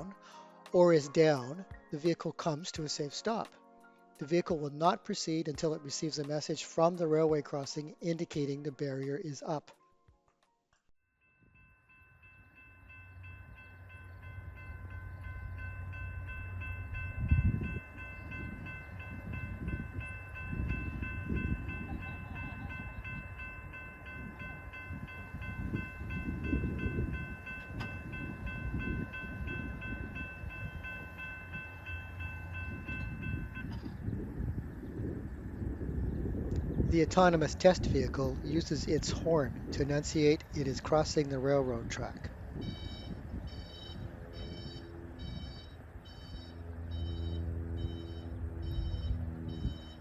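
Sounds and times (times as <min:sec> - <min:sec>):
railway crossing bell ringing: 0:11.2 - 0:34.2, 0:37.2 - 0:50.0
train rumble: 0:12.3 - 0:50.0.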